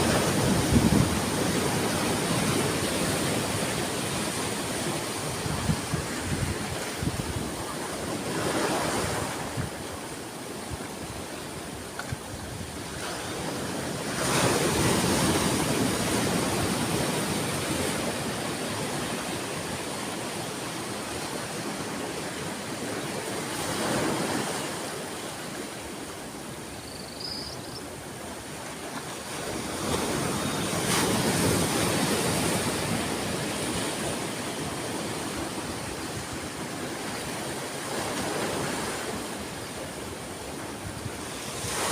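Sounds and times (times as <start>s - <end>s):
sea waves breaking on shore: 0.0s - 26.8s, 27.7s - 41.9s.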